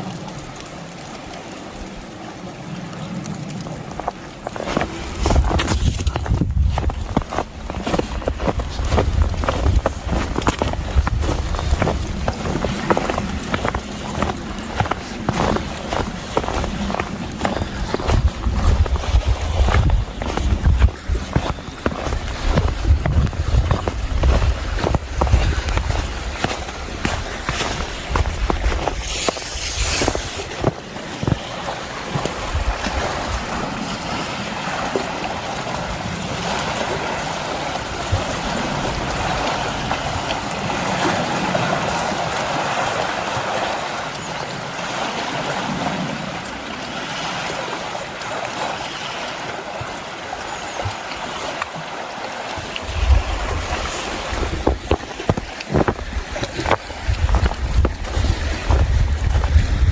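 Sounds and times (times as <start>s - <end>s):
wind buffeting microphone: 3.6s - 43.1s, 52.6s - 59.9s.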